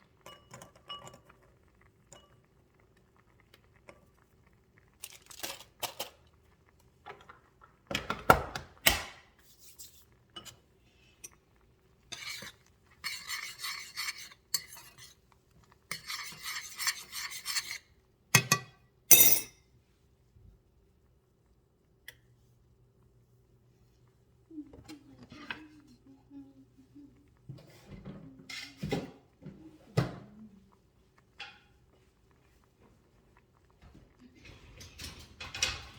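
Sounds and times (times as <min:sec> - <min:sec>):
dishes and utensils clattering: 0:00.2 - 0:02.4, 0:18.4 - 0:19.6, 0:27.5 - 0:30.3, 0:33.9 - 0:35.9
scraping or rubbing: 0:12.1 - 0:15.1, 0:16.0 - 0:17.8.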